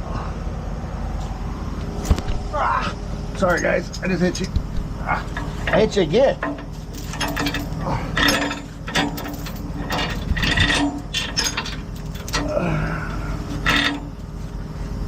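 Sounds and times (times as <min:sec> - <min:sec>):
truck engine running: 0:00.6 - 0:15.0
knocks and clatter: 0:06.4 - 0:12.6, 0:13.5 - 0:14.2
short falling groan: 0:12.3 - 0:13.7.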